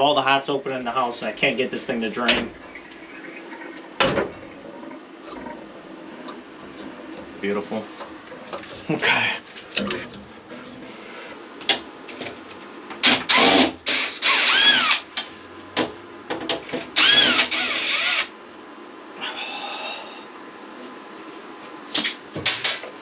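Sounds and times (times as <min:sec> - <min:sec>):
power drill motor: 0:13.0 - 0:15.0, 0:17.0 - 0:18.3.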